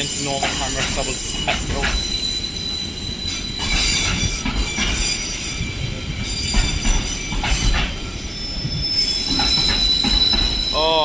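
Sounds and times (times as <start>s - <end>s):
freight train rumble: 0.0s - 11.0s
high wheel squeal: 0.0s - 11.0s
wheel clacks on track joints: 0.3s - 2.0s, 3.6s - 5.1s, 6.5s - 8.0s, 9.3s - 10.6s.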